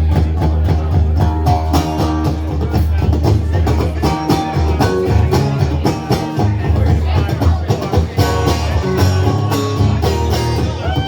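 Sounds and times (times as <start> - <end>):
deep bass: 0.0 - 11.0
guitar: 0.0 - 11.0
rock band playing: 0.0 - 11.0.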